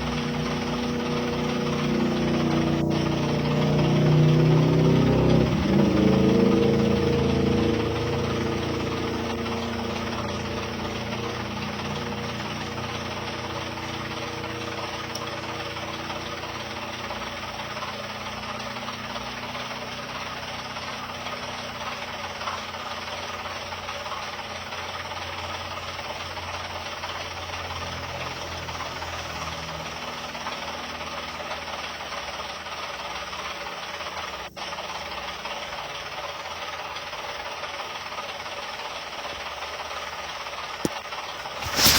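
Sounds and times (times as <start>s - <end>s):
low drone: 0.0s - 14.7s
machinery running: 0.0s - 22.4s, 23.1s - 41.9s.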